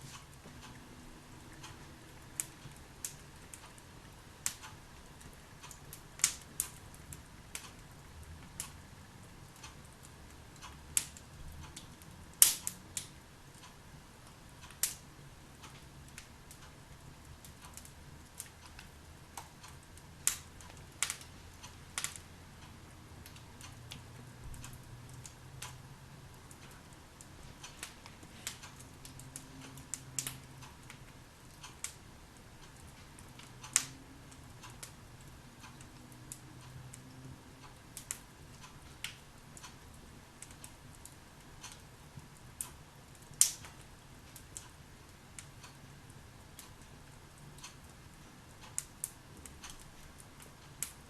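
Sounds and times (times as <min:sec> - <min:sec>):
wood fire crackling: 0:00.0 - 0:51.0
sharp pops of fire: 0:05.7 - 0:07.7, 0:12.3 - 0:13.1, 0:14.6 - 0:15.0, 0:17.8 - 0:21.3, 0:21.9 - 0:22.3, 0:33.6 - 0:34.0, 0:42.6 - 0:44.7.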